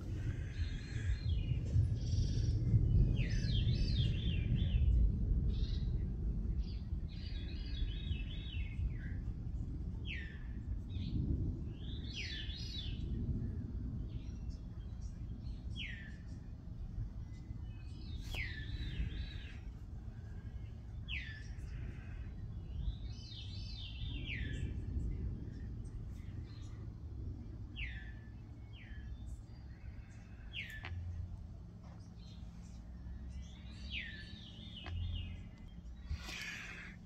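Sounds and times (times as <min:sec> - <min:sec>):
low background rumble: 0:00.0 - 0:37.0
harsh buzzy bird calls: 0:34.0 - 0:37.0.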